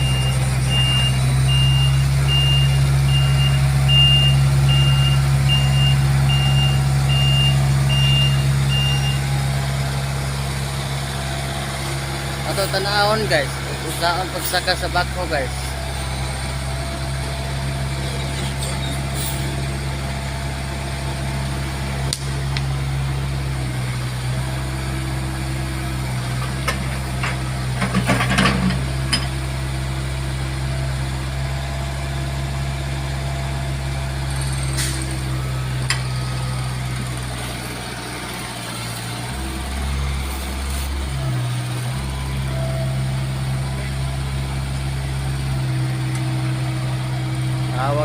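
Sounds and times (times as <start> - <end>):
diesel engine running: 0.0 - 48.0
metallic clanks: 26.5 - 29.4.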